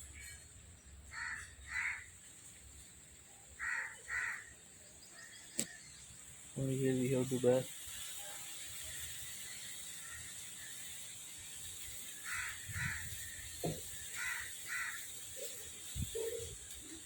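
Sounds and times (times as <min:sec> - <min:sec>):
crow cawing: 0:01.1 - 0:02.2, 0:03.6 - 0:04.5, 0:12.2 - 0:13.4, 0:14.1 - 0:15.2.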